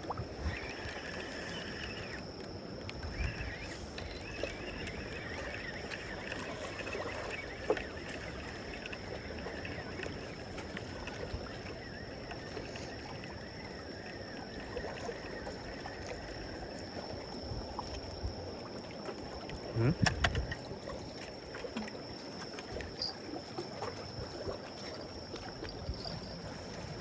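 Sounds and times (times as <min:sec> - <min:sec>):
water sloshing against breakwater: 0:00.0 - 0:27.0
thin steady high tone: 0:00.1 - 0:02.4, 0:03.0 - 0:17.2.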